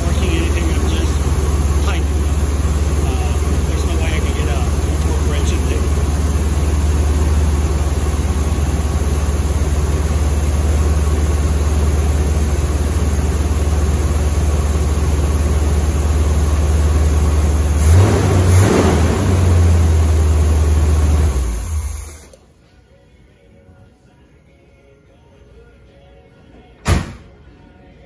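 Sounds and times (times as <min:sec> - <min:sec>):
car engine idling: 0:00.0 - 0:22.4
engine shutting off: 0:00.0 - 0:22.5.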